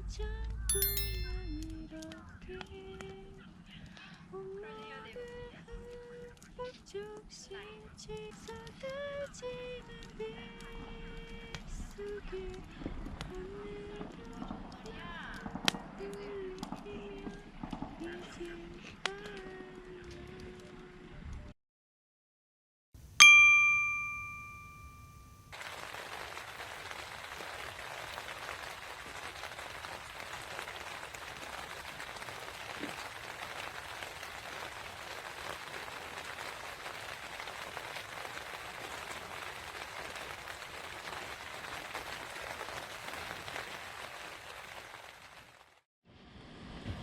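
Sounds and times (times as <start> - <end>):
bright bell-like ding: 0.7 - 1.9, 23.2 - 25.5
rain falling: 25.6 - 45.6.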